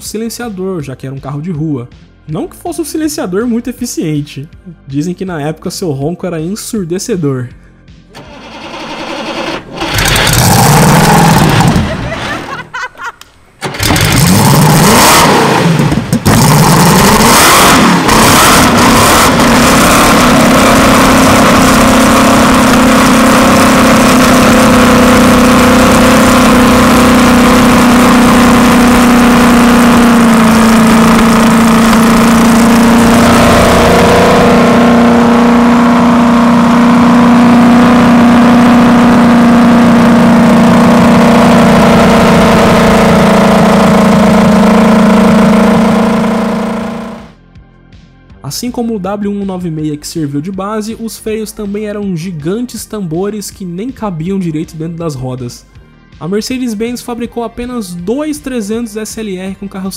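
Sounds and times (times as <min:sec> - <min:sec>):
car engine starting and idling: 0:08.0 - 0:47.4.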